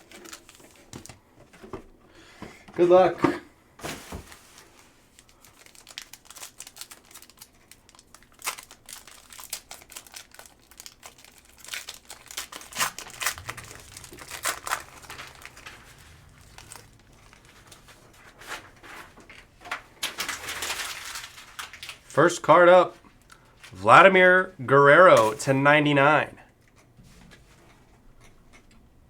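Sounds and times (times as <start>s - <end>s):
card wrapper crinkling: 0.0s - 1.1s, 4.4s - 22.2s.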